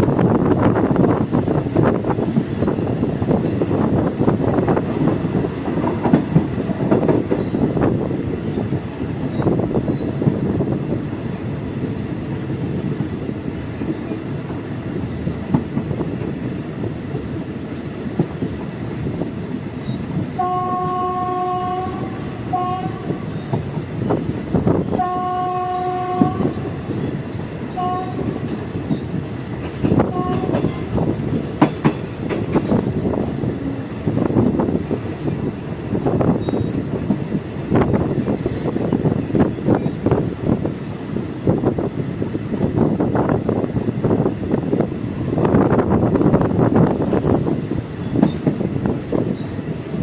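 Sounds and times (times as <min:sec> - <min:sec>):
train rumbling: 0:00.0 - 0:50.0
wheels clicking over rail joints: 0:01.8 - 0:10.3, 0:26.2 - 0:40.8
train horn blasts: 0:20.4 - 0:23.5, 0:24.9 - 0:26.7, 0:27.7 - 0:28.6, 0:30.0 - 0:31.1.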